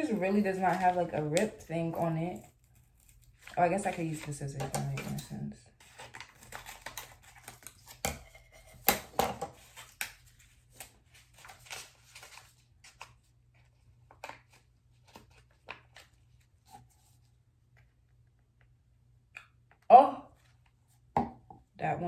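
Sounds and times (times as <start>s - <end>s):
packet crinkling: 0.1s - 5.0s
scissors snipping packet: 0.1s - 8.0s.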